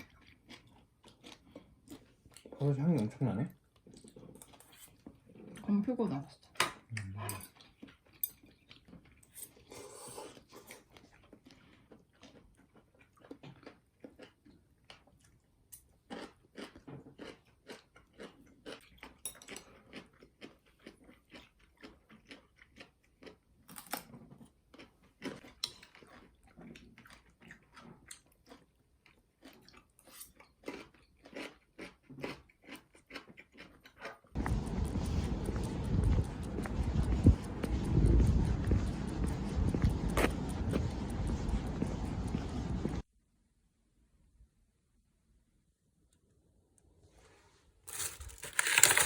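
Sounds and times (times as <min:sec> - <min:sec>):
person chewing food: 0:00.0 - 0:05.6, 0:06.9 - 0:43.0, 0:47.9 - 0:49.0.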